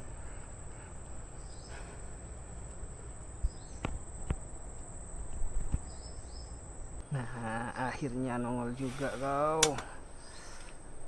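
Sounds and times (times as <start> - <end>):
insects droning: 0.0 - 11.0
sharp clicks: 9.6 - 9.9.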